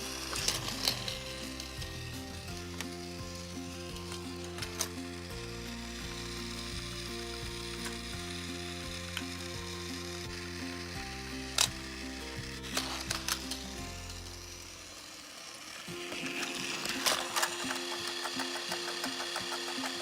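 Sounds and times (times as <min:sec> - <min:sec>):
sharp clicks: 0:16.4 - 0:20.0.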